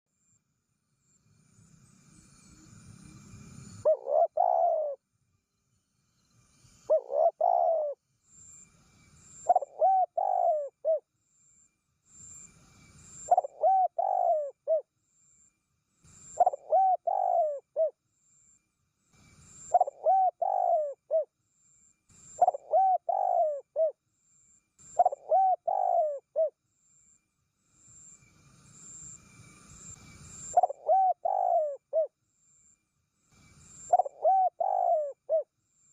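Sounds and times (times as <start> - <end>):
faint hiss: 0.8 - 3.9, 5.5 - 7.0, 8.0 - 9.6, 11.6 - 13.4, 18.4 - 19.8, 27.5 - 30.7, 32.8 - 34.0
dove cooing: 3.8 - 5.0, 6.9 - 8.0, 9.4 - 11.0, 13.3 - 14.8, 16.4 - 17.9, 19.7 - 21.3, 22.4 - 24.0, 24.9 - 26.5, 30.6 - 32.1, 33.9 - 35.5.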